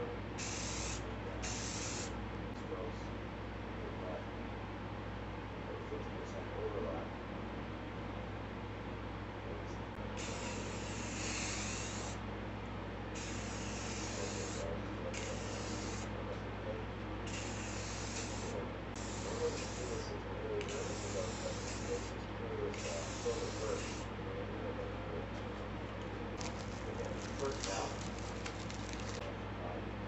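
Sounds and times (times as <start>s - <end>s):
spray paint can hissing: 0.4s - 2.1s, 10.2s - 12.2s, 15.2s - 16.0s, 17.3s - 19.9s, 20.7s - 22.1s.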